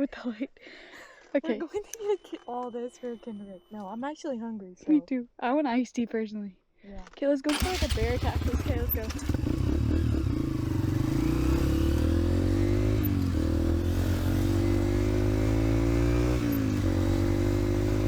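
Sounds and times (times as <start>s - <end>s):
dirt bike engine accelerating: 7.5s - 18.0s.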